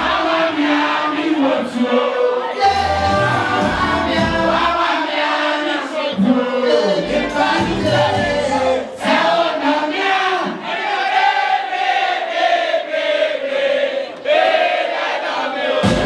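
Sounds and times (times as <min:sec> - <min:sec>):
crowd singing: 0:00.0 - 0:16.0
live music: 0:02.6 - 0:04.8, 0:07.0 - 0:08.8.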